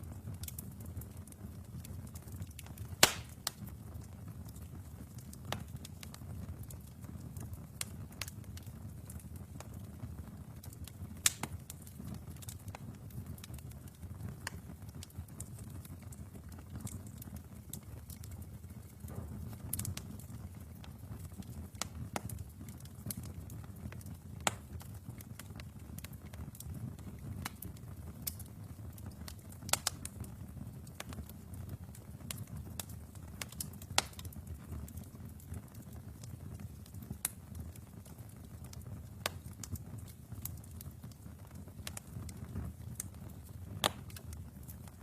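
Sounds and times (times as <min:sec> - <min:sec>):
fire rumbling in fireplace: 0:00.0 - 0:45.0
logs crackling and popping: 0:00.0 - 0:45.0.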